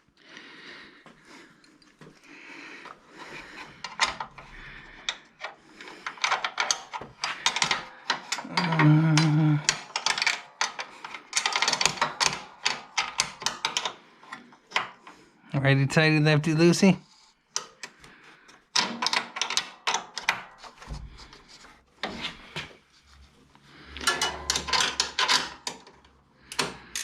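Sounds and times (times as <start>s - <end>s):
hand tools tapping on metal: 2.8s - 15.1s, 23.9s - 27.0s.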